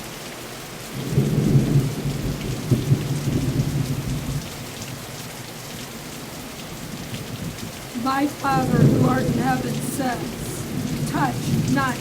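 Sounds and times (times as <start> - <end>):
steady rain falling: 0.0 - 12.0
low thunder rumble: 1.0 - 4.6, 6.8 - 12.0.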